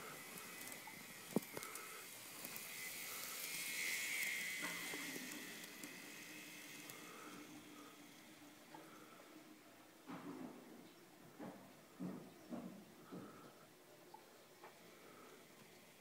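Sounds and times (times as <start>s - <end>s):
wheels clicking over rail joints: 0.0s - 9.0s
model train motor whining: 0.0s - 10.0s, 14.7s - 16.0s
wheels hissing on track: 0.0s - 10.0s, 14.7s - 16.0s.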